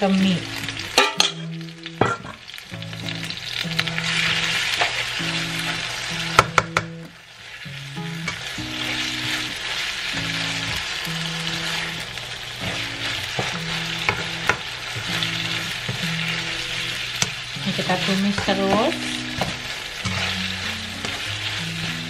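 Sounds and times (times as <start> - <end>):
fish sizzling in a pan: 0.0 - 22.0
background music: 7.7 - 22.0.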